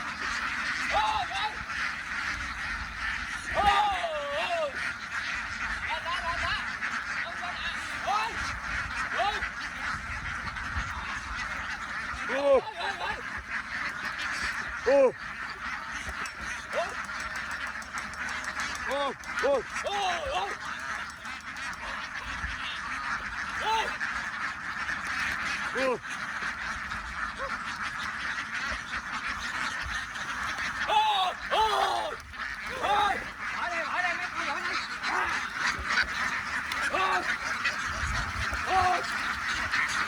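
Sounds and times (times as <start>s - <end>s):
flock of ducks quacking: 0.0s - 40.0s
loud drawn-out duck calls: 0.0s - 40.0s.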